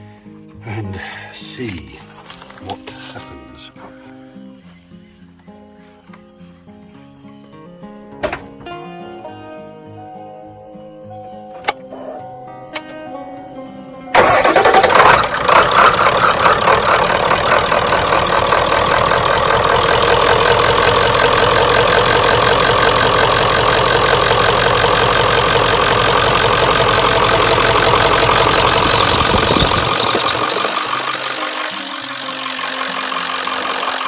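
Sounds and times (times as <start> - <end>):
diesel engine starting and idling: 14.1 - 34.0.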